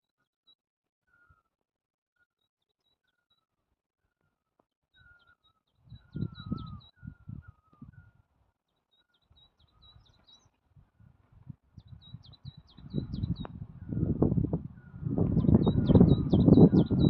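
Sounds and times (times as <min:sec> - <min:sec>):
birds chirping: 0:05.0 - 0:08.1, 0:08.9 - 0:10.7, 0:11.8 - 0:17.0.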